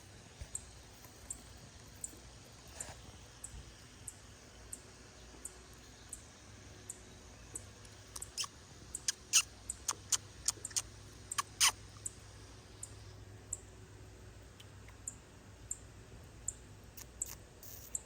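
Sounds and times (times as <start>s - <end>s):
baby bird chirping: 8.1s - 12.1s, 17.0s - 18.0s.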